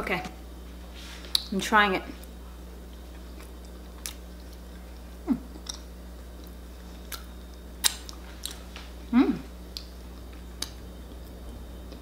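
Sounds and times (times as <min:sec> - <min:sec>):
low room hum: 0:00.0 - 0:12.0
person chewing: 0:02.9 - 0:08.7
person murmuring: 0:09.1 - 0:09.5.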